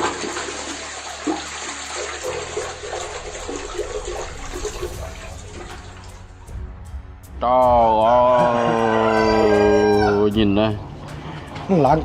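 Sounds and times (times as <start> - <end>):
toilet flushing: 0.0 - 6.4.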